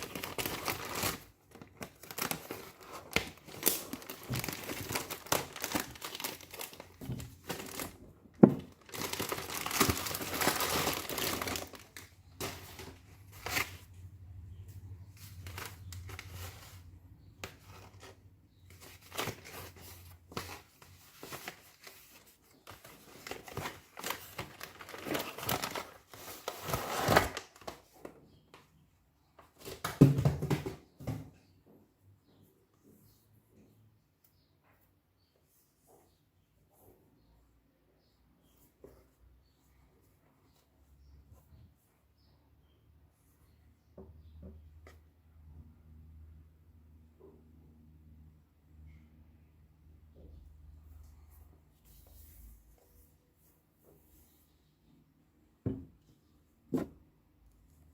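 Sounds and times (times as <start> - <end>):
packaging crinkling and tearing: 0.0 - 8.0, 8.6 - 13.8, 21.2 - 27.8.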